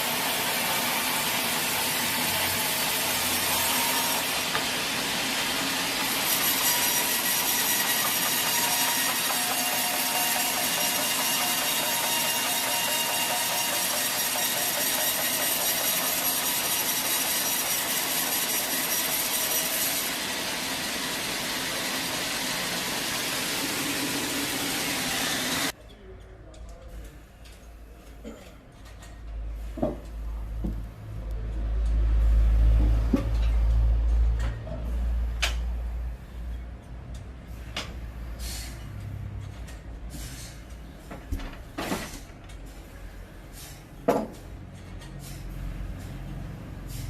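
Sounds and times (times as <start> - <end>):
saw cutting through log: 0.0 - 25.7.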